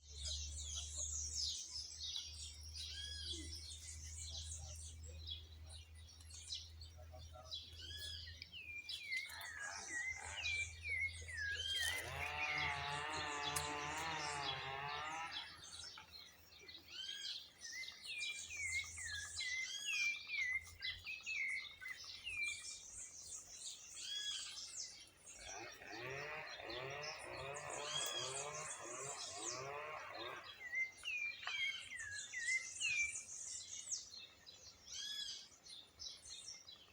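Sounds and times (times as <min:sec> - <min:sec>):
birds chirping and calling: 0:00.0 - 0:36.9
loud wavering bird call: 0:25.4 - 0:31.0.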